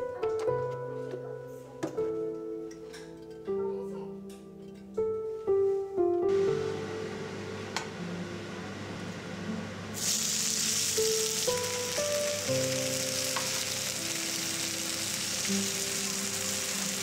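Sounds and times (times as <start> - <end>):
soft piano music: 0.0 - 17.0
fritters sizzling in oil: 10.0 - 17.0.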